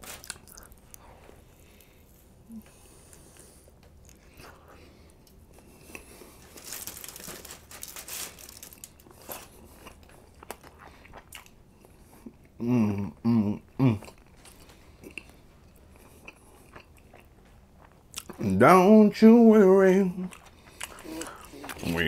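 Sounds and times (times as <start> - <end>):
aluminium foil crinkling: 0.0 - 0.7, 6.2 - 9.7
chewing with mouth clicks: 0.2 - 1.1, 2.6 - 6.4, 9.0 - 12.6, 13.8 - 18.4, 20.2 - 22.0.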